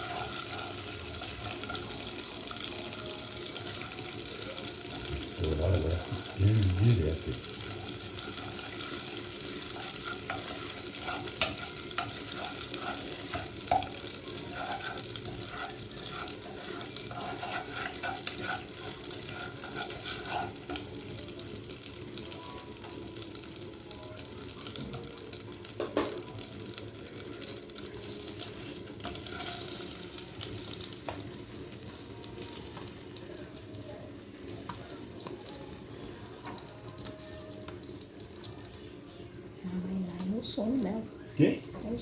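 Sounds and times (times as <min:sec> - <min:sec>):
cooking hiss: 0:00.0 - 0:42.0
utensils clinking on cookware: 0:07.8 - 0:20.9.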